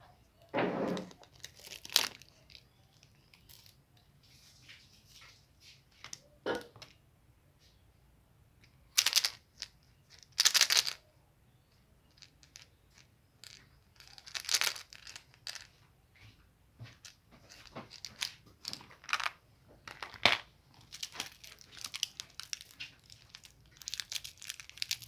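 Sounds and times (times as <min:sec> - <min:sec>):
small rustles and clicks: 0:00.4 - 0:06.3, 0:12.0 - 0:25.0
candy wrappers crinkling: 0:01.0 - 0:03.8, 0:08.9 - 0:11.0, 0:12.1 - 0:15.7, 0:17.0 - 0:25.0.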